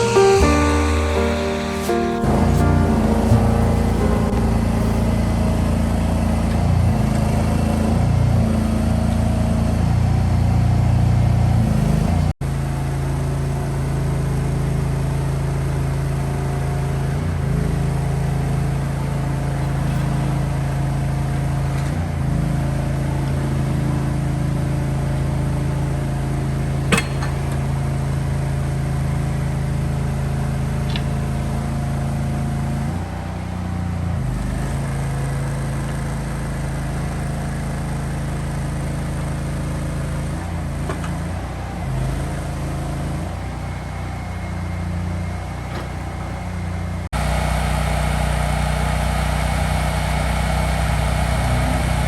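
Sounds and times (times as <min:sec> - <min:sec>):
low engine hum: 0:02.2 - 0:12.0.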